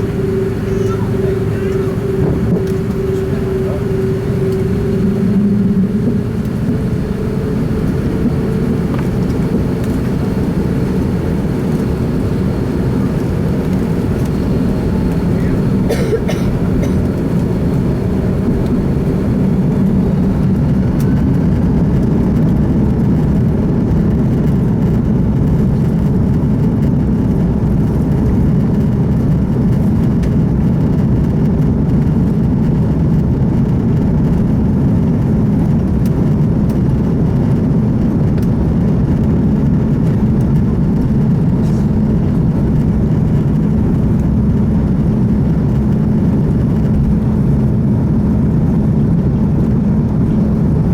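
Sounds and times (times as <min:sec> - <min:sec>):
jet engine rumble in cabin: 0:00.0 - 0:50.9.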